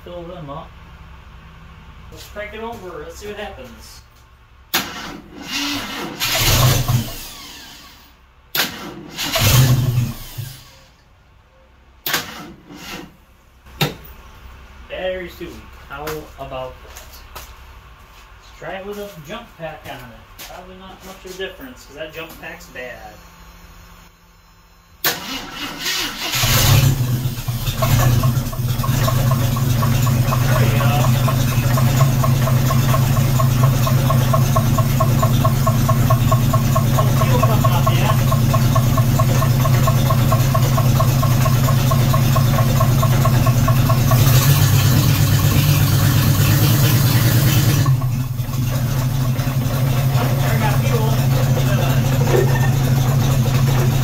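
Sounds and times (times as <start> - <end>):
car engine cranking and running: 4.7 - 10.9, 25.0 - 54.0.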